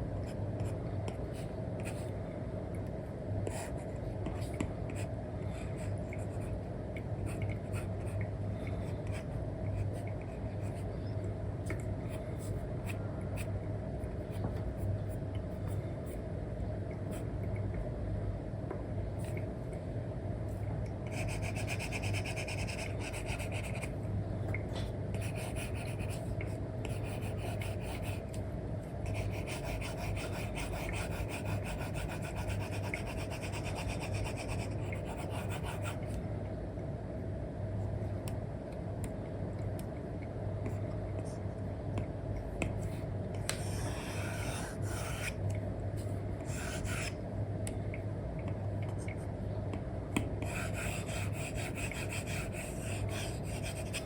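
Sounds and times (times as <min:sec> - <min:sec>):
steady low hum: 0:00.0 - 0:54.0
stylus scratching on screen: 0:29.1 - 0:36.0, 0:43.6 - 0:45.4, 0:46.5 - 0:47.2, 0:50.4 - 0:54.0.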